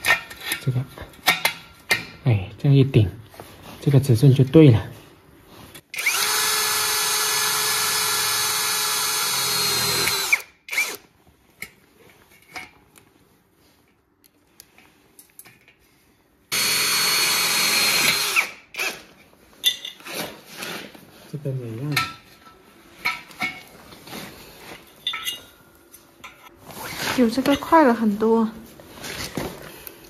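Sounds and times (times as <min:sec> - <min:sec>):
electric drill running: 0:06.0 - 0:11.0, 0:16.5 - 0:18.6.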